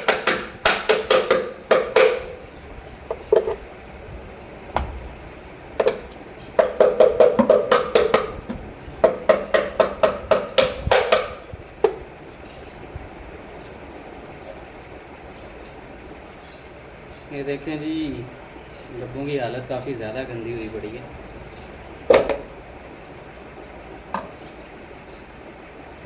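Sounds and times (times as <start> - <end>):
hollow knocks on wooden box: 0.0 - 2.4, 4.7 - 5.0, 5.8 - 12.1, 22.1 - 22.5.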